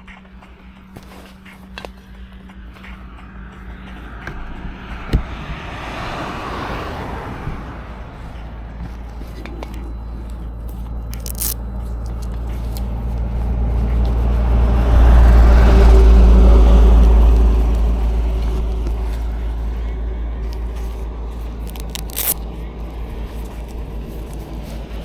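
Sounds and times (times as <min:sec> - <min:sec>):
road noise: 0:00.0 - 0:25.0.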